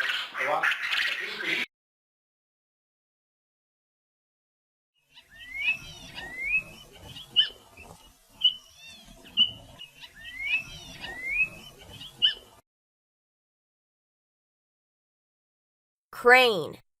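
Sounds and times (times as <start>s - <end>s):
quail calling: 0.0s - 1.6s, 5.1s - 12.6s.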